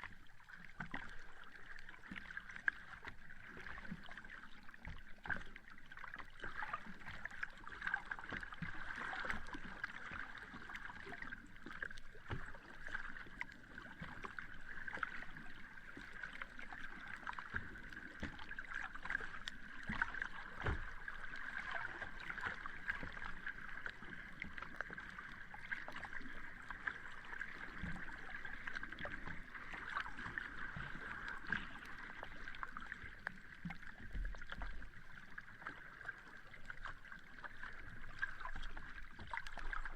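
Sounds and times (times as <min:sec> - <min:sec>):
small crackles of surf: 0:19.1 - 0:39.9.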